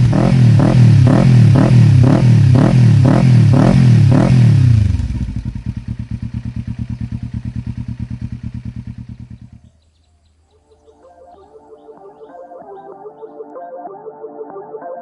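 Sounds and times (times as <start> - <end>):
motorcycle engine idling: 0.0 - 10.5.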